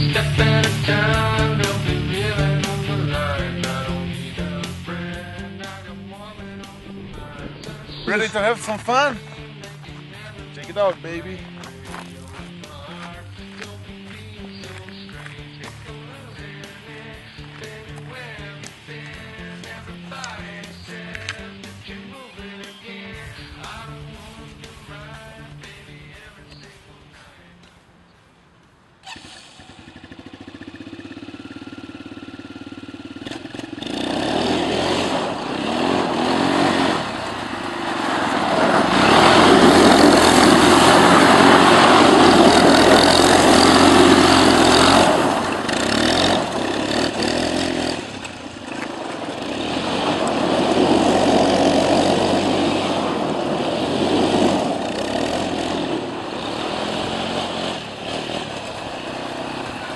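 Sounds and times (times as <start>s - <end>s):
quad bike engine revving: 0.0s - 14.9s, 29.0s - 59.9s.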